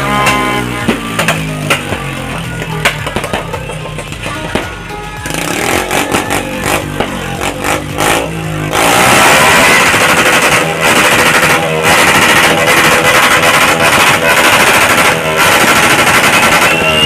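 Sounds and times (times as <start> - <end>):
music: 0.0 - 10.8, 14.6 - 17.0
engine revving: 0.0 - 17.0
firecrackers crackling: 0.0 - 17.0.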